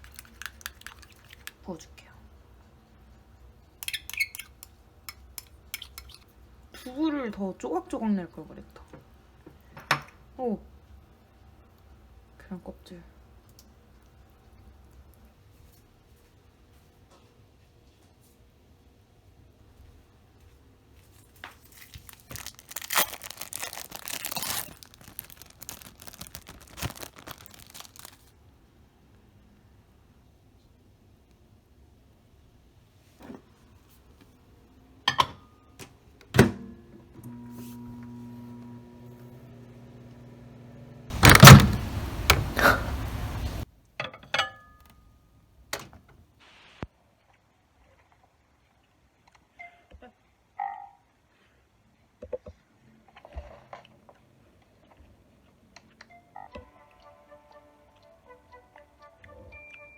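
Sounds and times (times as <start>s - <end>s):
plastic packaging crinkling and tearing: 0.0s - 1.6s, 21.6s - 28.3s.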